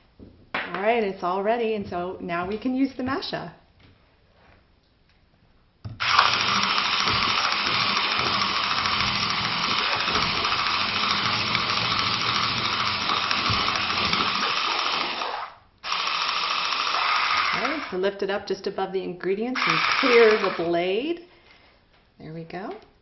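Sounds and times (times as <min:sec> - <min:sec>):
electric mixer running: 0:06.0 - 0:18.0, 0:19.6 - 0:20.8.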